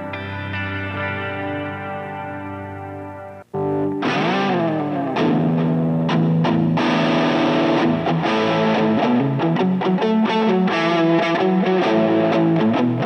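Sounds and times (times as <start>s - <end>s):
distorted electric guitar riff: 0.0s - 13.0s.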